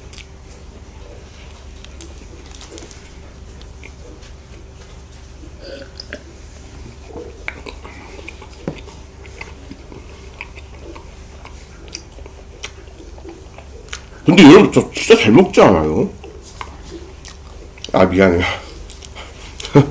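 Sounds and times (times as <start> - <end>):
man chewing with wet smacks: 0.0 - 15.2, 16.1 - 18.0, 18.6 - 19.9
man swallowing: 5.4 - 6.4.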